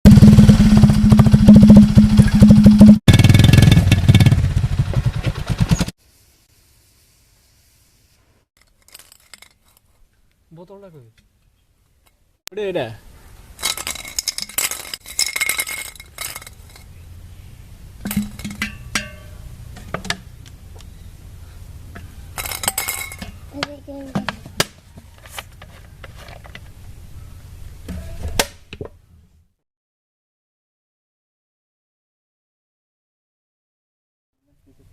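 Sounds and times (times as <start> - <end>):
motorcycle engine running: 0.1 - 5.9
metallic clinking and rattling: 8.6 - 10.1, 13.6 - 17.0, 18.0 - 20.2, 22.0 - 26.8.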